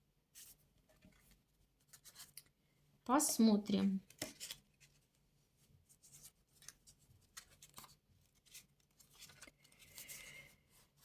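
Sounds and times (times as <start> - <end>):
playing cards rustling and tapping: 4.0 - 5.0.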